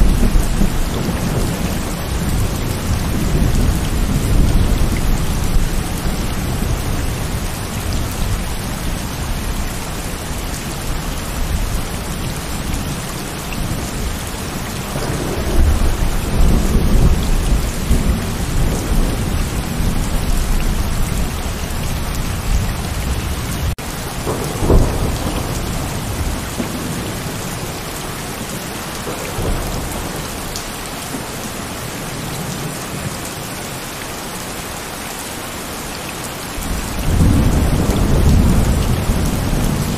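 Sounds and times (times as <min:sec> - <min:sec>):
thunder rumbling: 0:00.0 - 0:12.0, 0:13.6 - 0:30.6, 0:36.6 - 0:39.9
heavy rain: 0:00.0 - 0:39.9
sharp thunderclap: 0:22.5 - 0:27.4, 0:36.6 - 0:39.9.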